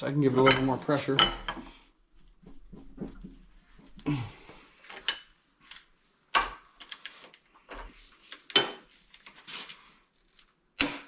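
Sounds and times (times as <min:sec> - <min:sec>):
steel tools clanking: 0:00.4 - 0:01.6.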